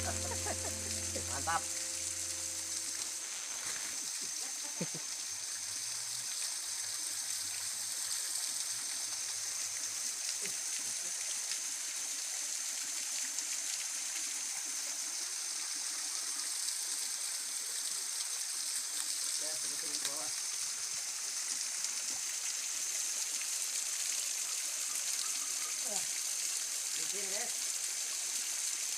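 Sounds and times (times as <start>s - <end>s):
thin steady high tone: 0.0s - 3.7s.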